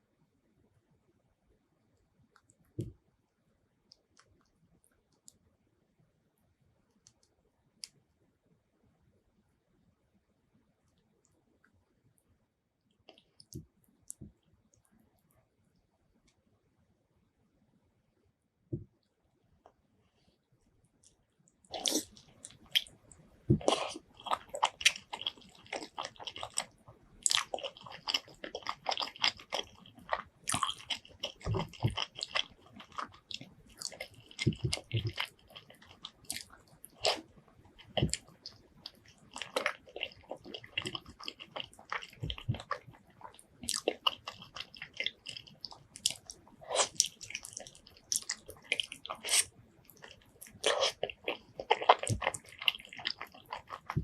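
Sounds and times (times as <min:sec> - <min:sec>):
person chewing and lip-smacking: 0:21.7 - 0:54.0.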